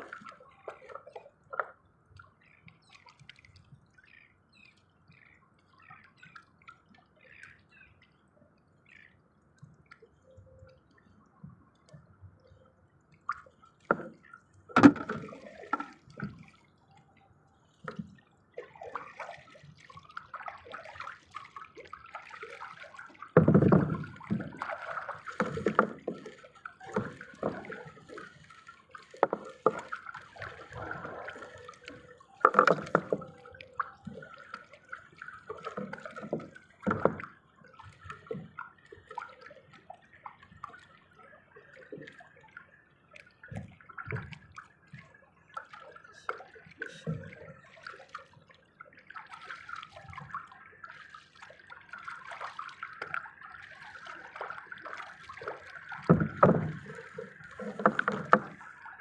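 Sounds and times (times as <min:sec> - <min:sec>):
water sloshing and splashing: 0:00.0 - 0:59.0
knocks on boat: 0:14.8 - 0:15.2.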